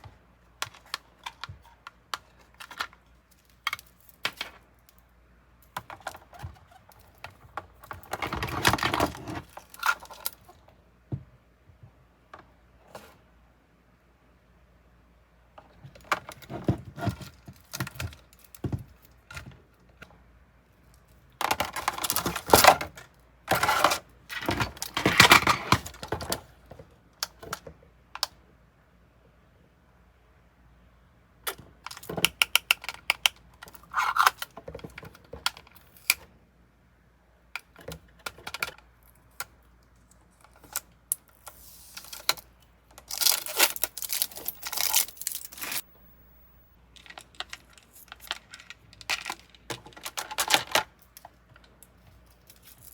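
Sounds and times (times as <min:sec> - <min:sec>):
plastic items clicking and rattling: 0:21.4 - 0:27.6, 0:40.4 - 0:52.9
handling of packaging: 0:43.0 - 0:50.7.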